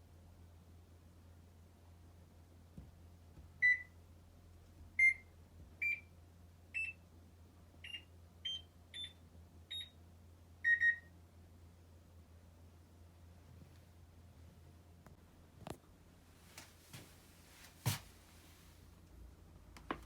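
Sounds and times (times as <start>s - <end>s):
washing machine panel beeps: 3.6s - 4.0s, 5.0s - 6.1s, 6.8s - 7.0s, 7.8s - 10.0s, 10.6s - 11.1s.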